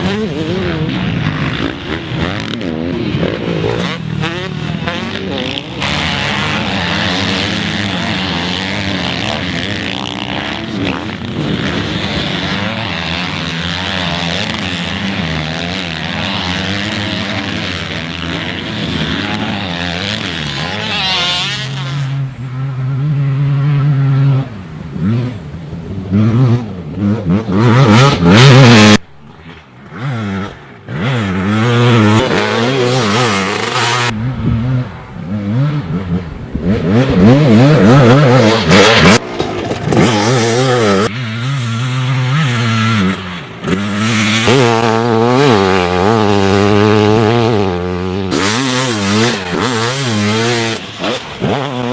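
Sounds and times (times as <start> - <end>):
dirt bike engines revving: 0.0 - 51.9.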